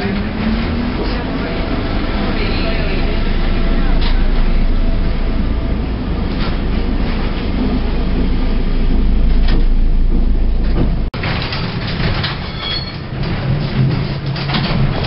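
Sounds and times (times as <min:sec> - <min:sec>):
tram rumbling and rattling on rails: 0:00.0 - 0:15.0
high squeals of tram wheels: 0:12.0 - 0:13.4.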